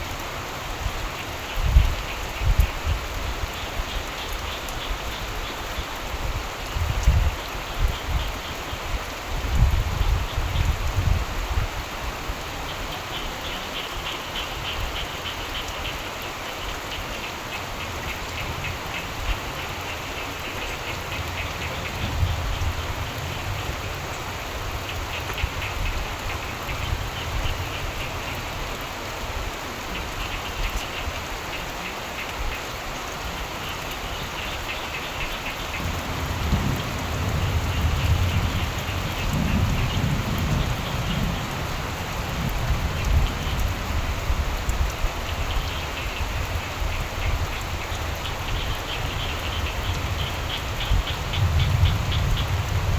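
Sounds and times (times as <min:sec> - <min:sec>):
steady rain falling: 0:00.0 - 0:52.9
frogs trilling: 0:12.6 - 0:28.8, 0:29.8 - 0:44.4, 0:45.0 - 0:52.9
thunder rumbling: 0:35.7 - 0:44.4, 0:49.2 - 0:52.9.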